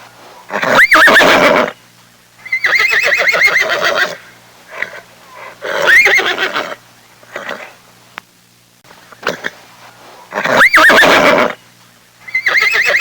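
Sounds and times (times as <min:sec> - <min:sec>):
animal wavering cries: 0:00.5 - 0:01.8, 0:02.4 - 0:04.2, 0:04.8 - 0:06.8, 0:10.3 - 0:11.6, 0:12.2 - 0:13.0.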